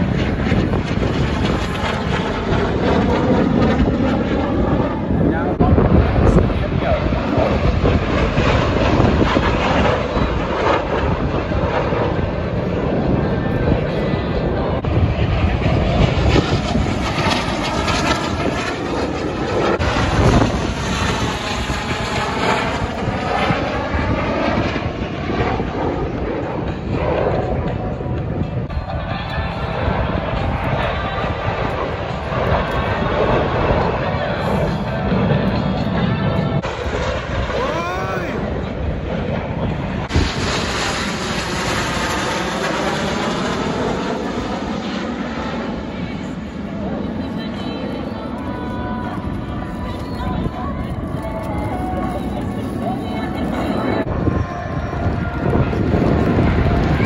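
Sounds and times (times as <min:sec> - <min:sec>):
jet aircraft flying past: 0:00.0 - 0:57.0.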